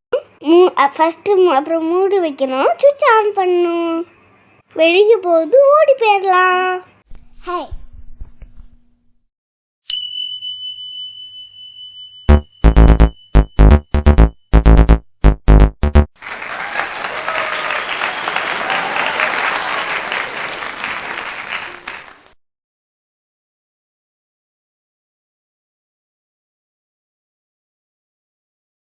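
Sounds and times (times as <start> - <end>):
high electronic beep: 12.2 - 16.1
punchy synth hits: 12.3 - 16.1
applause: 16.2 - 22.4.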